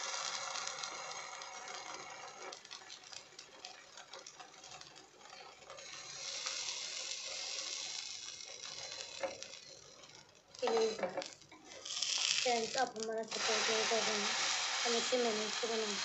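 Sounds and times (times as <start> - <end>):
bread sizzling and crackling: 0.0 - 16.0.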